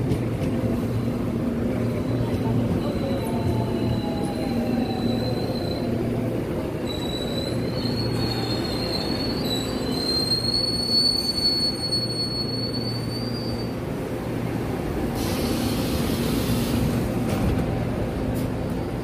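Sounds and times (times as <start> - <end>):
train rumble: 0.0 - 19.0
train high-pitched squeal: 2.0 - 6.0, 6.8 - 13.9.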